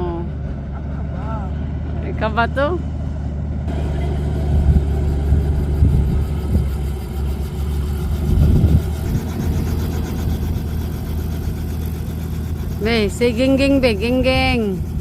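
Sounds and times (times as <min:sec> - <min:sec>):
helicopter engine and rotor: 0:03.7 - 0:15.0.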